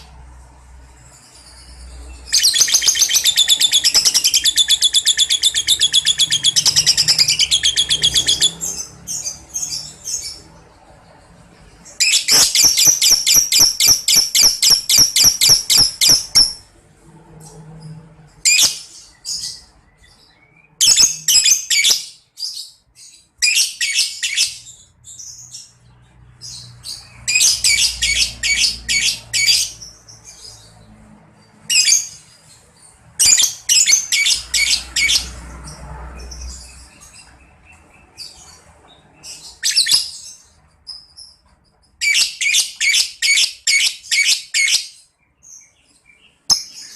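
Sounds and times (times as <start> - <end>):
lovebird chattering: 2.2 - 10.4, 12.0 - 16.7.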